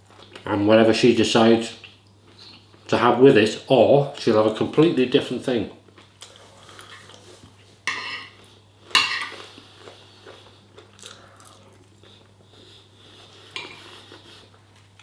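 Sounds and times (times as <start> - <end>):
cutlery clinking on a plate: 7.9 - 8.4, 9.0 - 9.4.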